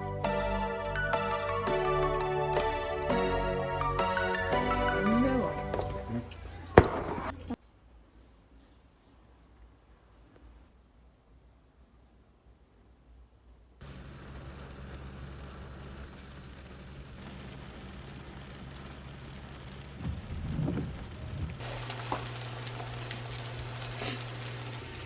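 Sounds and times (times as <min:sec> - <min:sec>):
fan humming: 0:02.0 - 0:07.6, 0:13.8 - 0:25.0
food sizzling in frying pan: 0:21.6 - 0:25.0.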